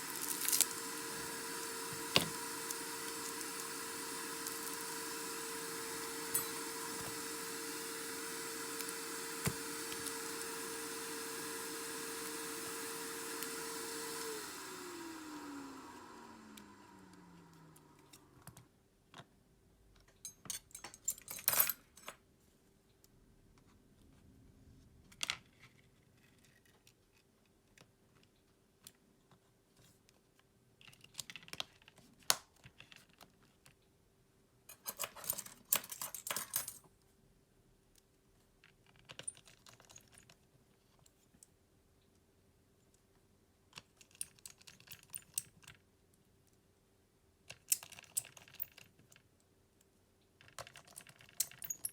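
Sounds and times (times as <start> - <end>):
light rattles of phone parts: 50.4 - 51.9.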